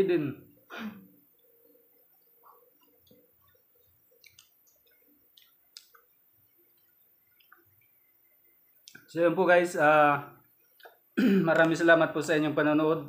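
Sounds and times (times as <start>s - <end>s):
faint chewing clicks and smacks: 1.3s - 9.1s, 10.4s - 11.8s.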